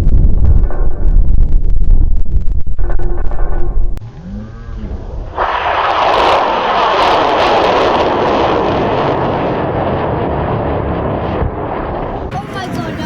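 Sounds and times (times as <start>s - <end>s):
rocket motor roaring: 2.8s - 12.9s.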